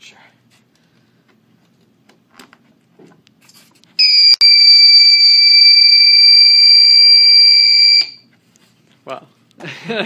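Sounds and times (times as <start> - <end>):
high-pitched electronic buzzer tone: 4.0 - 8.2.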